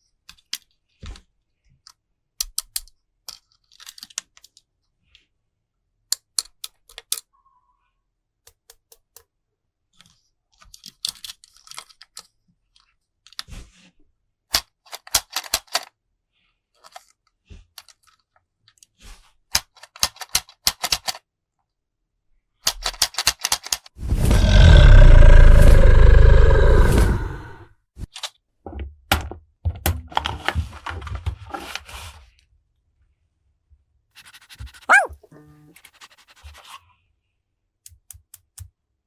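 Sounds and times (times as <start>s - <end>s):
plastic toys clicking and tapping: 2.4s - 4.6s, 8.5s - 9.3s, 14.5s - 15.9s, 19.6s - 21.2s, 22.7s - 23.8s.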